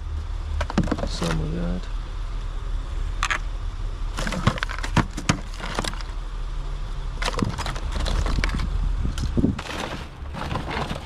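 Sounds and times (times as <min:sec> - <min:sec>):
hard objects knocking and clattering: 0:04.2 - 0:06.1, 0:09.6 - 0:11.0.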